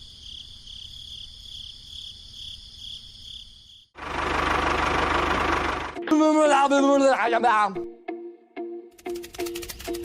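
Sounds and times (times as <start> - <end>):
crickets chirping: 0.0 - 4.0.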